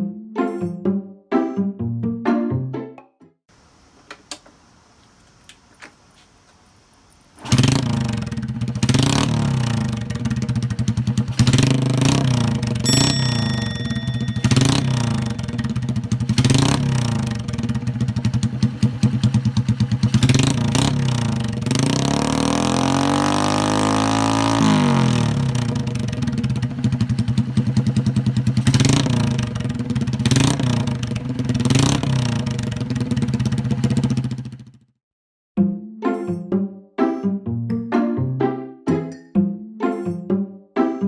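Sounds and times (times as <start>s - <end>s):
motorcycle engine idling and revving: 7.1s - 35.0s.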